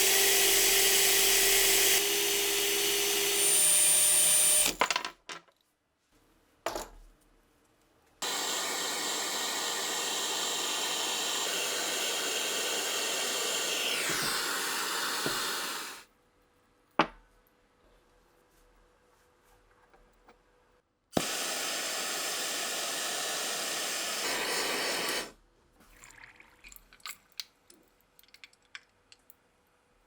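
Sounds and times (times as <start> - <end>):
power tool running: 0.0 - 4.8, 8.2 - 16.0, 21.2 - 25.3.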